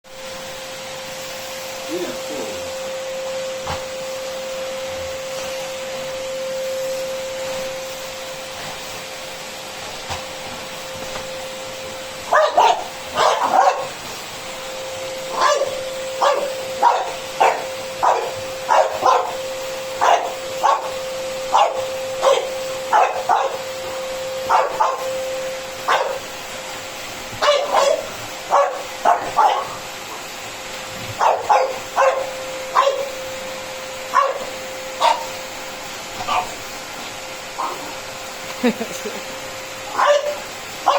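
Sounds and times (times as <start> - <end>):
steady hum: 0.5 - 40.9
dog barking: 12.3 - 14.0, 15.3 - 19.4, 20.0 - 23.7, 24.5 - 25.2, 25.9 - 26.3, 27.4 - 29.8, 31.2 - 33.2, 34.1 - 35.4, 36.2 - 36.6, 37.6 - 37.9, 39.9 - 40.9.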